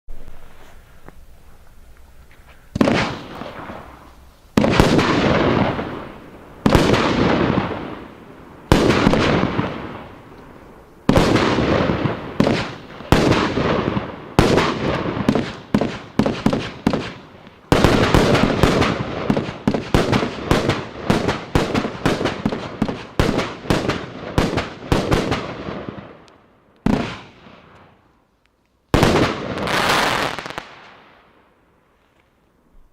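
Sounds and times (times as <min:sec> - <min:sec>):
fireworks bangs: 0:00.1 - 0:28.2, 0:28.9 - 0:31.5.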